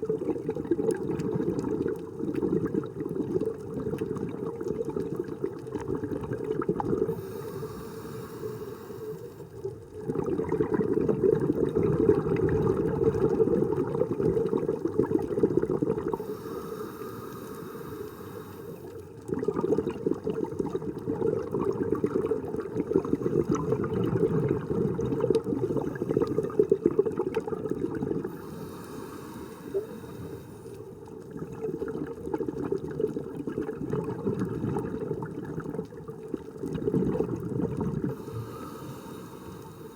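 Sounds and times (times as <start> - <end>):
exhaled bubbles underwater: 0.0 - 39.9
regulator inhalation hiss: 7.1 - 9.5, 16.2 - 18.9, 28.3 - 30.8, 38.1 - 39.9.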